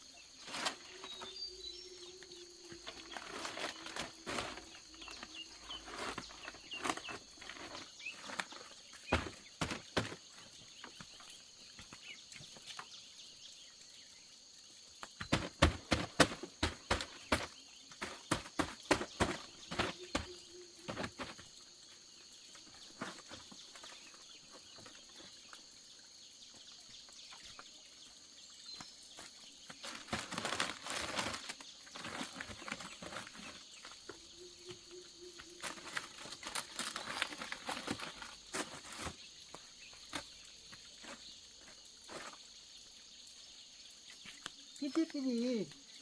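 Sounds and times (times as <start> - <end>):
rustling: 0.4 - 1.4, 2.7 - 10.3, 29.2 - 34.2, 35.6 - 40.3.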